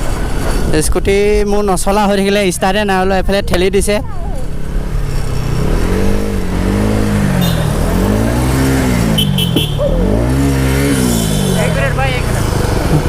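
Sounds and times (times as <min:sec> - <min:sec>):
engine revving: 0:04.6 - 0:13.0.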